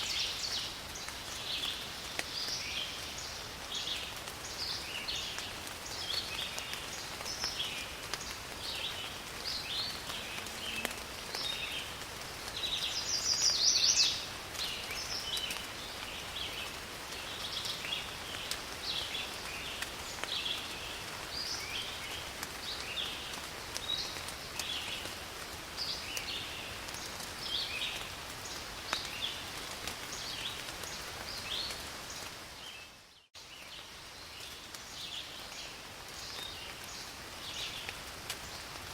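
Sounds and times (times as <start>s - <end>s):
rain falling in forest: 0.0s - 38.9s.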